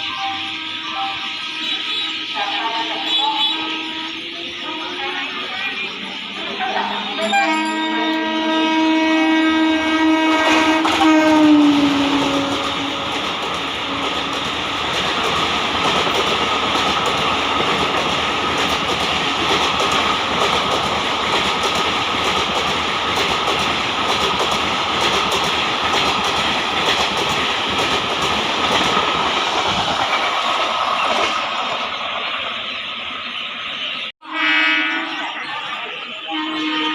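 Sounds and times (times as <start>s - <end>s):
train horn: 0.0s - 6.0s, 6.6s - 15.1s, 34.2s - 36.9s
train coaches clattering over rails: 0.0s - 34.1s.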